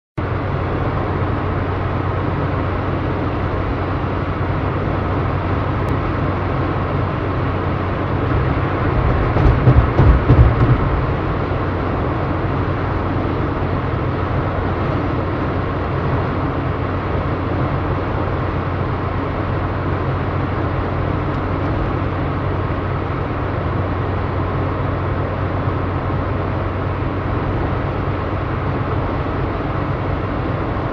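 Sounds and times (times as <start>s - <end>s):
road noise: 0.2s - 30.9s
truck engine drone: 0.2s - 30.9s
knocks: 8.3s - 11.4s.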